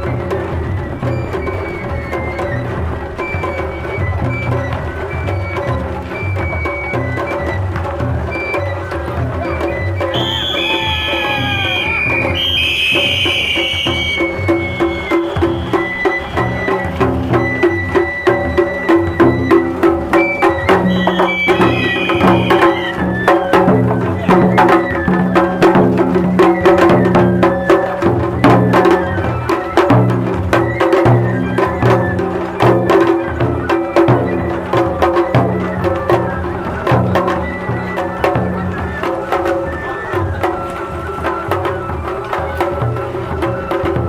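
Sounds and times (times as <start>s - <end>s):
drums in quick rhythm: 0.0s - 44.0s
high flute phrase: 8.4s - 25.8s.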